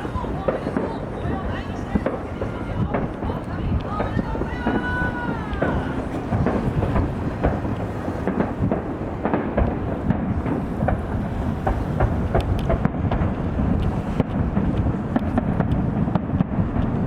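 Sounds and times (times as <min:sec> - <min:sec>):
fireworks booming: 0:00.0 - 0:17.0
fireworks sharp cracks: 0:00.0 - 0:17.0.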